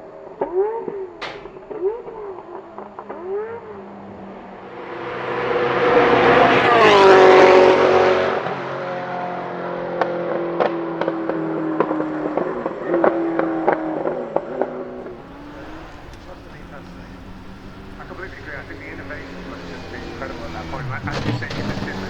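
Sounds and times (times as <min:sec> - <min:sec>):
sports car engine passing by: 0:03.0 - 0:13.6, 0:15.0 - 0:22.0
exhaust pops and crackles: 0:15.0 - 0:22.0.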